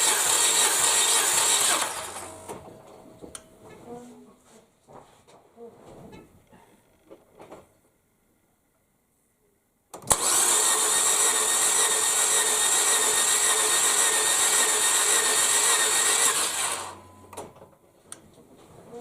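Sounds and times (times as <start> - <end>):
power tool running: 0.0 - 2.6, 10.1 - 17.1.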